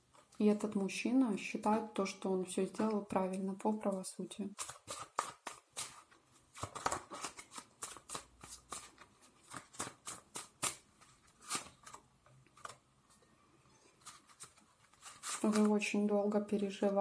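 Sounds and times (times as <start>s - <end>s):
cards being shuffled: 4.6s - 12.8s, 14.0s - 15.7s.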